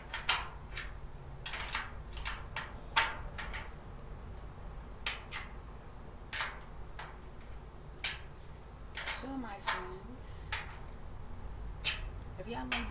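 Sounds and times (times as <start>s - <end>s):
cart parts knocking and clinking: 0.0s - 3.8s.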